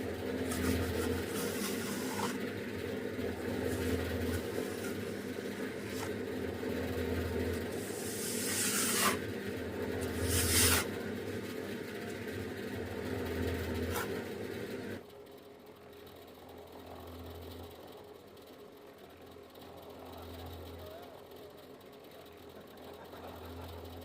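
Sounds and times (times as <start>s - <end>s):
small motor humming: 0.0s - 15.1s.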